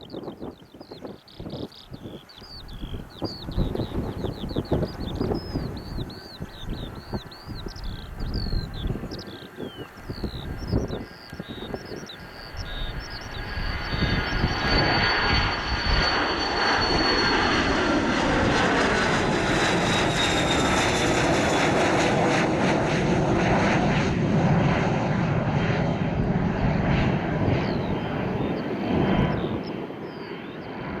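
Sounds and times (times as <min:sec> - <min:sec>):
airplane engines passing close: 0:00.0 - 0:31.0.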